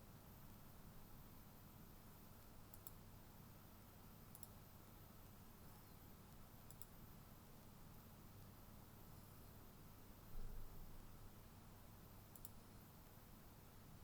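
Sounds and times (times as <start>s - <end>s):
computer mouse clicks: 2.4s - 3.0s, 4.3s - 4.6s, 6.3s - 7.0s, 12.3s - 12.6s.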